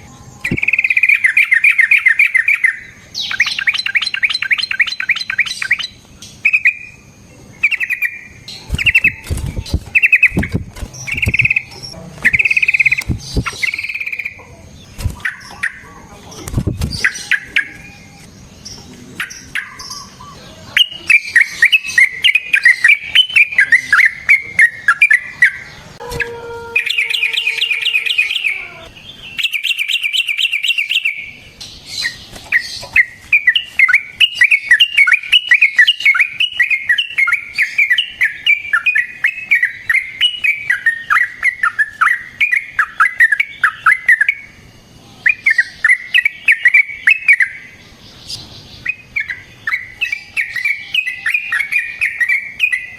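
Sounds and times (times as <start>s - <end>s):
bulbul singing chattering notes: 0.0s - 15.9s, 17.0s - 31.4s.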